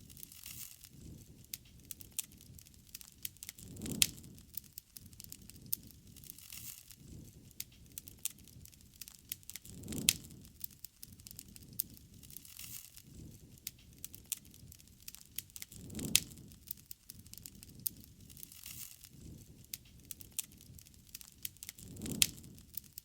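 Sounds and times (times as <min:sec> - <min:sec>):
wood crackling and popping: 0:00.0 - 0:23.0
low flame roar: 0:00.9 - 0:12.4, 0:13.0 - 0:23.0.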